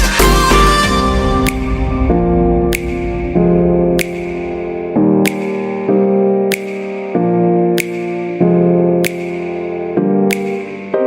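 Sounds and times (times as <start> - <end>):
sharp percussive hit: 0.0 - 7.2
held synthesizer chords: 0.0 - 11.0.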